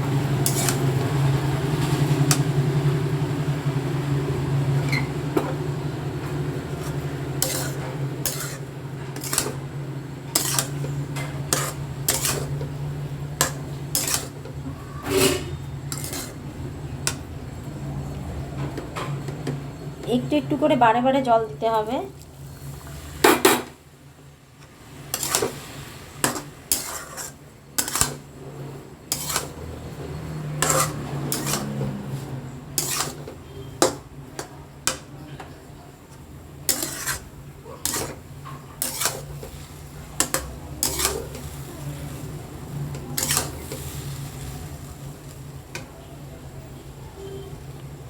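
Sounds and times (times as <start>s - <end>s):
spoon scraping metal pan: 0.4s - 2.5s, 6.2s - 17.4s, 25.1s - 44.6s.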